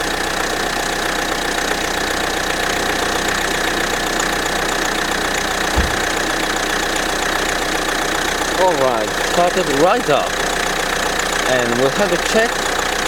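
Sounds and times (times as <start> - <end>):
low thud: 5.8 - 6.4.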